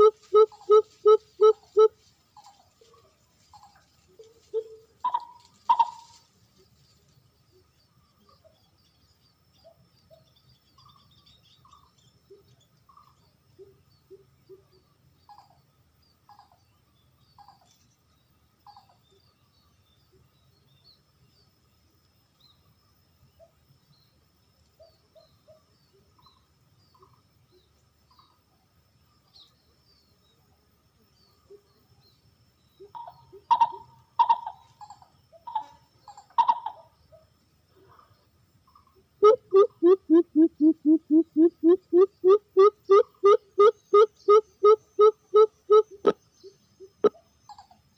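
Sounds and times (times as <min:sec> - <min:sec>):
dove cooing: 0:00.0 - 0:01.9, 0:04.2 - 0:06.1, 0:32.9 - 0:34.6, 0:36.4 - 0:36.8, 0:39.2 - 0:46.2
faint bird chirps: 0:00.0 - 0:47.9.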